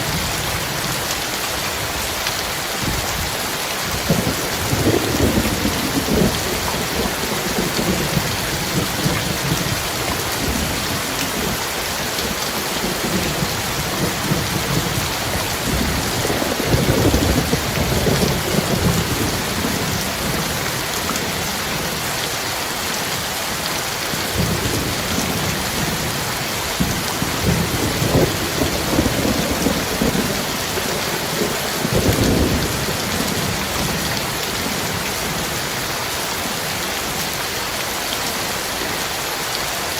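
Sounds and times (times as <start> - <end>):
heavy rain: 0.0 - 39.9
thunder rumbling: 3.9 - 21.9, 24.3 - 35.6.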